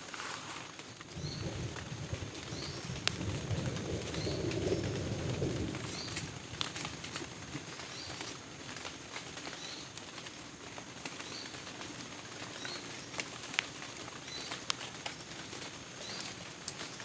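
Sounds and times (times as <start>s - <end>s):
rain hiss: 0.0s - 17.0s
low rumble: 1.1s - 7.7s
sharp drip-like clicks: 6.1s - 17.0s.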